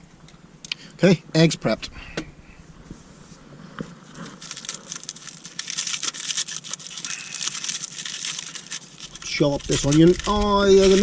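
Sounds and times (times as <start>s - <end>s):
dry crinkling and rustling: 3.4s - 11.0s.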